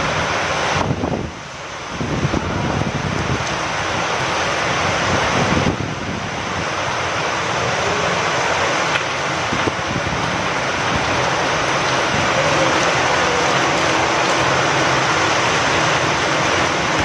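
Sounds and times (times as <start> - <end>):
rain falling with wind: 0.0 - 17.0.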